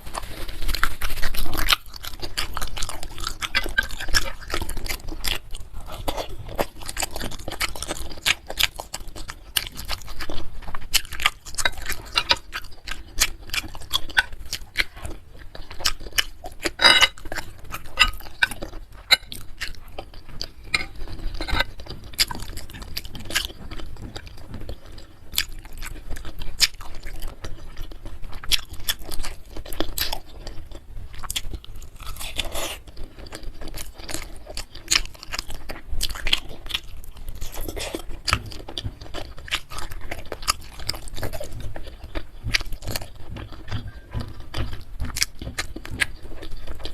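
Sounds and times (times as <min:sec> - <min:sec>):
person chewing: 0:00.0 - 0:46.9.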